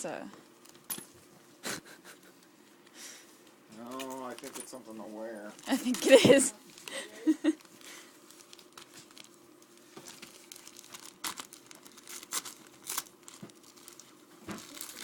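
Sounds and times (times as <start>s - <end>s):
wrapping paper crinkling and tearing: 3.8s - 15.0s.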